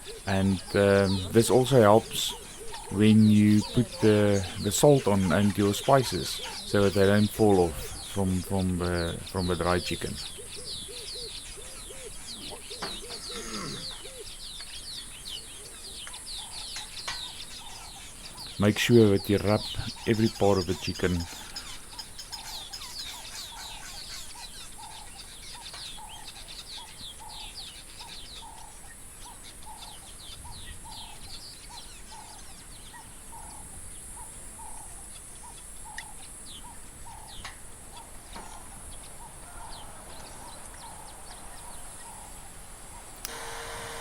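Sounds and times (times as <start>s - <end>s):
steady high hiss: 0.0s - 24.6s, 40.2s - 44.0s.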